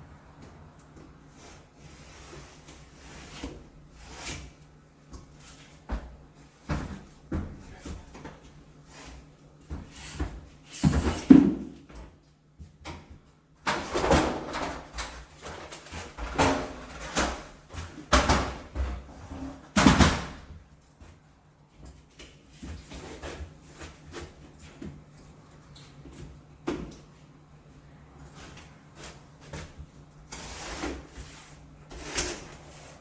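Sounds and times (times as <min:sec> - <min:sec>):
blade scraping plaster wall: 0:30.3 - 0:33.0.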